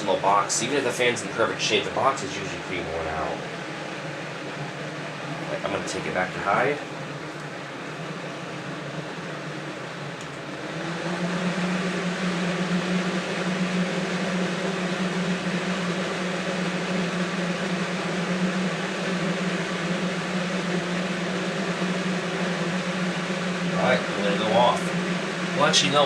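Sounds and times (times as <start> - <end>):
box fan running: 0.0 - 26.0.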